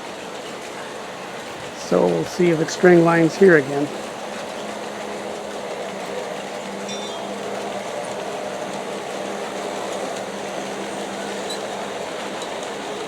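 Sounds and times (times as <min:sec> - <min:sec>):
model train motors humming: 0:00.0 - 0:13.0
wheels rolling over track: 0:00.0 - 0:13.0.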